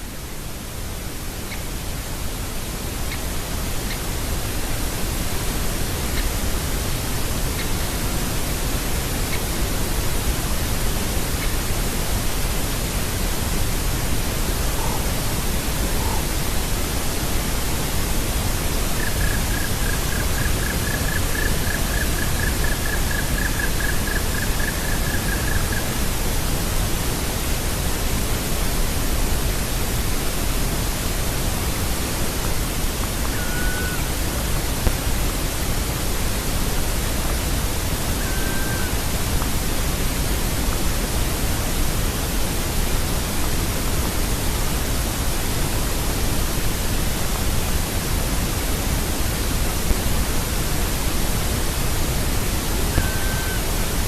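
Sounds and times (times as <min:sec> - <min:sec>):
loud steady hiss: 0:00.0 - 0:54.0
woodpecker calling: 0:19.0 - 0:25.9.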